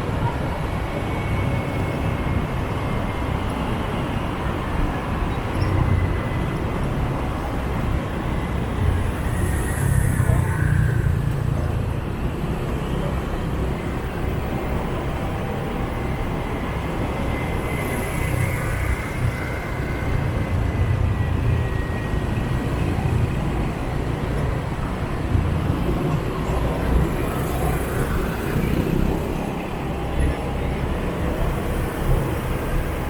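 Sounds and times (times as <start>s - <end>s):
motorbike engines rumbling: 0.0s - 33.0s
road noise: 0.0s - 33.0s.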